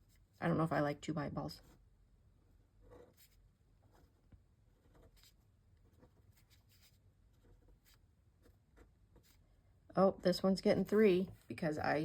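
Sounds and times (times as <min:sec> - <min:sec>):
pen scratching on paper: 0:02.8 - 0:09.4.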